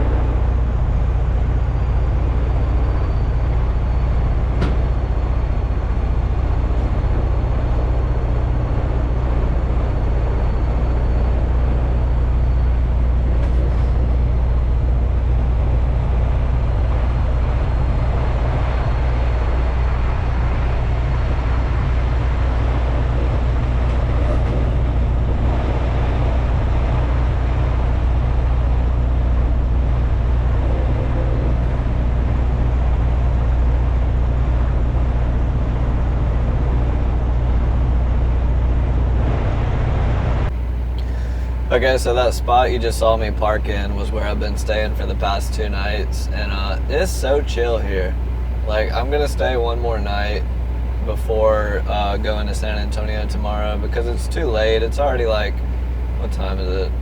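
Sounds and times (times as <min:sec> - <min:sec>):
road and cab noise: 0:00.0 - 0:57.0
truck diesel engine drone: 0:00.0 - 0:57.0.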